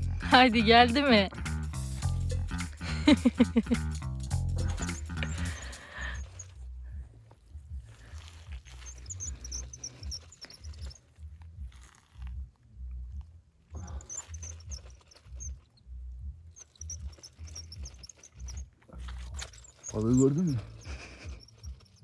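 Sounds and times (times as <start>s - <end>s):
small bird chirping: 3.4s - 6.5s, 7.9s - 12.3s, 13.8s - 22.0s.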